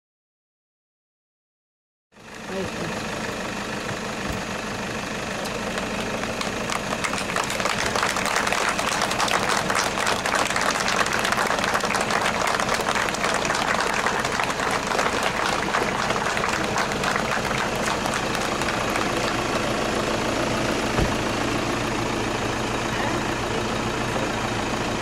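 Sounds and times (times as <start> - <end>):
car engine idling: 2.2 - 25.0.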